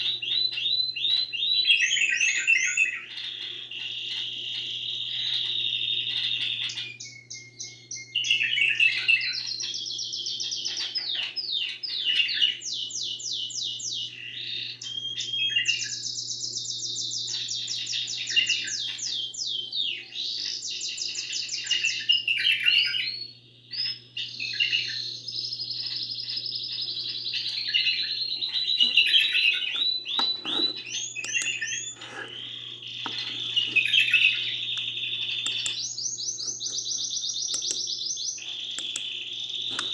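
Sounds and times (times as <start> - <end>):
songbird trilling: 25.9 - 39.9.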